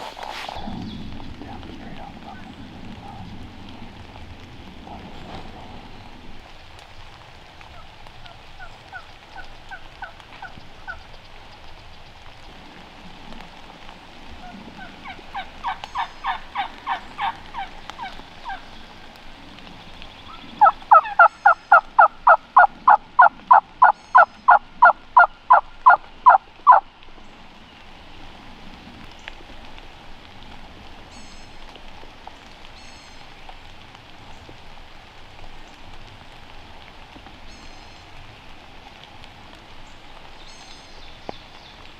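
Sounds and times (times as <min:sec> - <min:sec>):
turkey yelping: 0:20.6 - 0:26.8.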